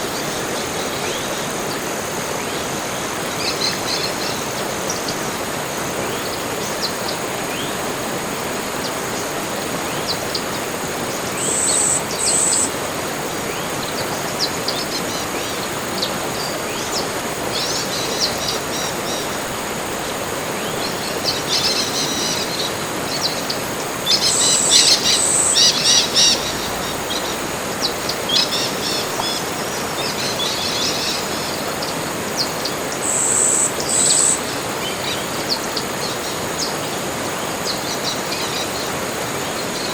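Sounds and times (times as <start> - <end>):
background hiss: 0.0 - 39.9
rapid chattering bird calls: 23.2 - 31.3.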